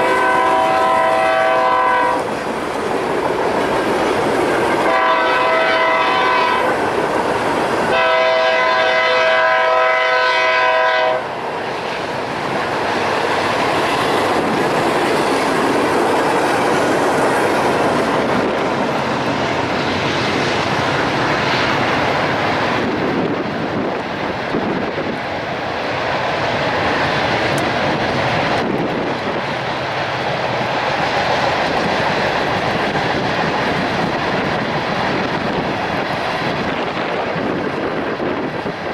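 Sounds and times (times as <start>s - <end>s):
locomotive air horn: 0.0s - 2.3s, 4.8s - 6.8s, 7.9s - 11.3s
train rumbling past: 0.0s - 38.9s.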